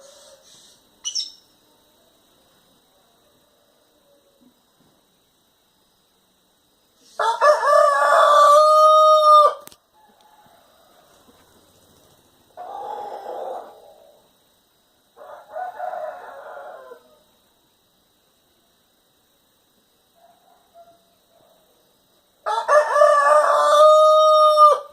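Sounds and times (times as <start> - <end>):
rooster crowing: 7.2 - 11.4, 12.6 - 14.0, 15.2 - 17.4, 22.4 - 24.9.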